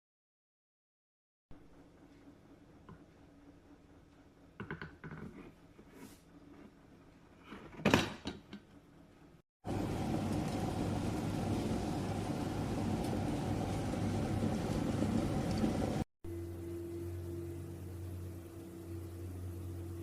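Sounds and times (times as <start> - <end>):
electric kettle heating water: 9.6 - 20.0.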